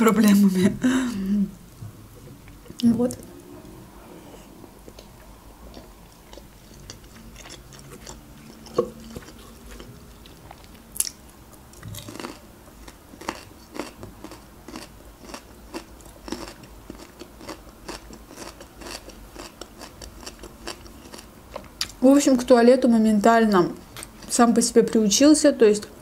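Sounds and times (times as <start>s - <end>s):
chewing pasta: 4.8s - 22.0s.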